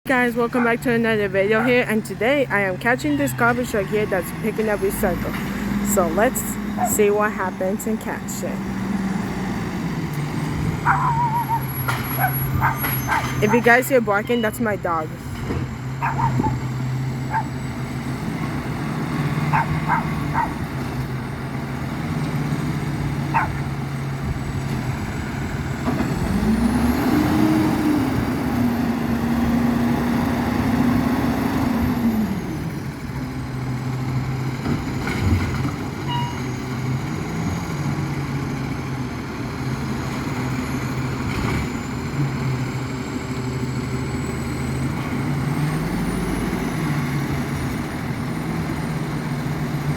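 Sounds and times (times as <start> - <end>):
garbage truck diesel engine: 0.0 - 49.9
dog barking: 10.8 - 13.4, 16.0 - 16.6, 17.3 - 17.6, 19.5 - 20.6, 23.3 - 23.7.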